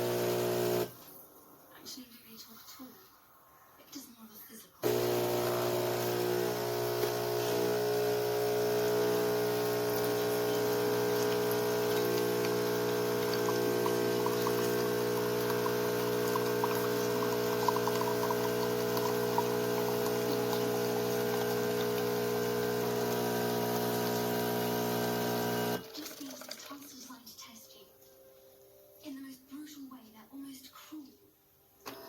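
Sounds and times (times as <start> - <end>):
espresso machine pump humming: 0.0 - 0.9, 4.8 - 25.8.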